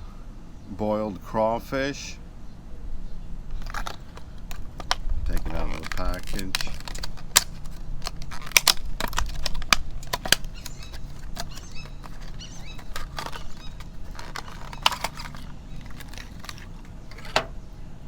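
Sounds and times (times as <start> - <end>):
plastic packaging crinkling: 3.6 - 17.6.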